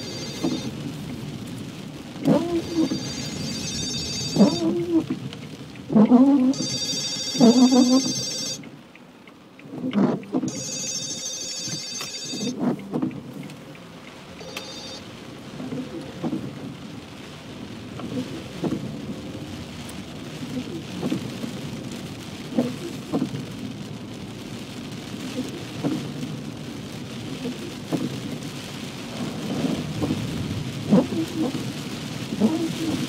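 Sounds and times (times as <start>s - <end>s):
high electronic ringing tone: 0.0s - 0.7s, 2.4s - 5.1s, 6.5s - 8.6s, 10.5s - 12.6s, 14.4s - 15.0s
heavy rain on a car: 0.0s - 33.0s.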